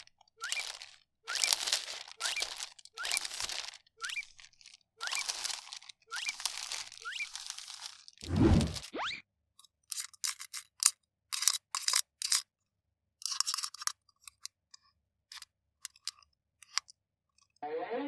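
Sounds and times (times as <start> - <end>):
plastic packaging crinkling: 0.0 - 8.8.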